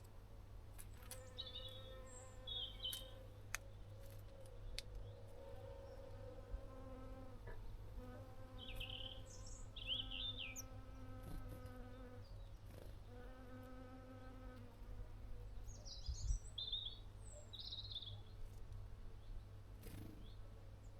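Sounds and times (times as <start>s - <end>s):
small birds chirping: 0.9s - 6.2s, 8.4s - 13.4s, 15.4s - 20.9s
flying insect buzzing: 8.0s - 12.2s.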